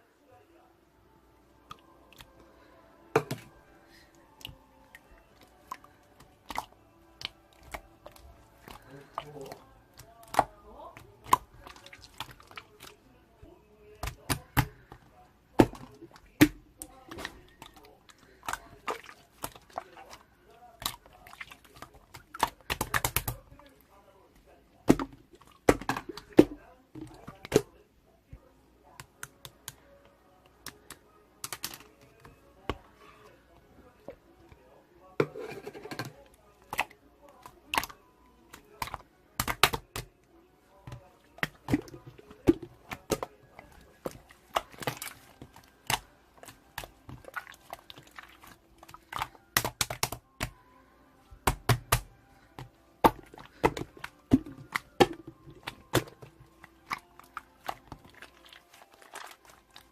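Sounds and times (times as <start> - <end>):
slime squishing with clicking pops: 20.8 - 23.4, 30.6 - 31.9, 37.7 - 40.1, 44.0 - 50.6.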